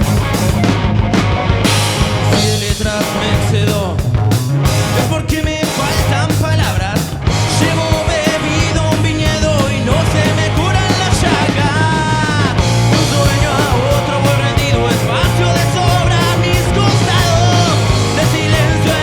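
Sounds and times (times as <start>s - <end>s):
live rock band playing: 0.0s - 19.0s
person singing: 4.9s - 19.0s.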